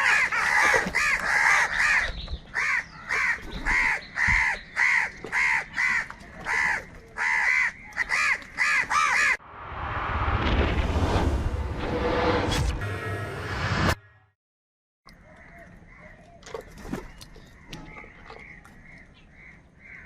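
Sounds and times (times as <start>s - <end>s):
crows cawing: 0.0s - 9.4s, 17.6s - 20.0s.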